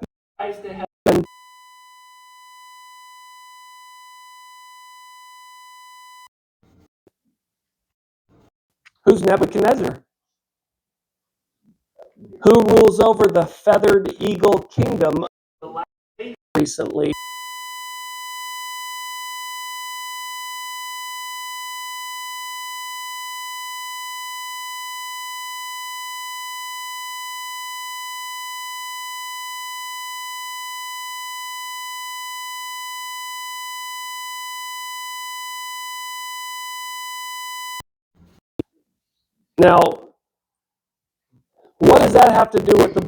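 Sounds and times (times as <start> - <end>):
steady electronic beep tone: 1.1 - 6.3, 17.2 - 37.8.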